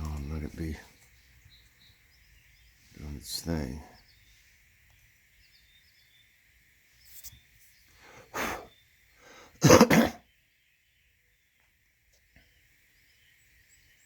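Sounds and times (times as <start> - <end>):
sharp breaths: 7.9 - 9.6
person sneezing: 9.6 - 10.2.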